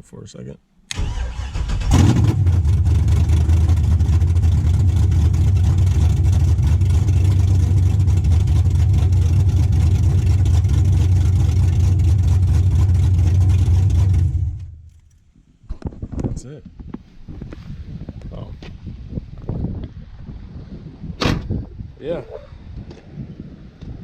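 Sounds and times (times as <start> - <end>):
car engine idling loudly: 1.9 - 15.0.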